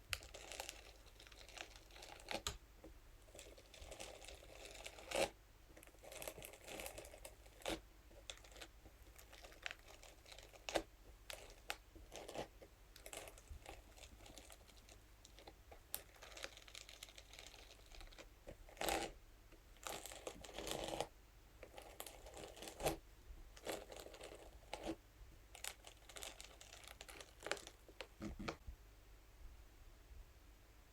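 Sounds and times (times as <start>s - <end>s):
brush scratching crinkly material: 3.3s - 15.0s, 21.7s - 23.0s, 23.6s - 25.0s.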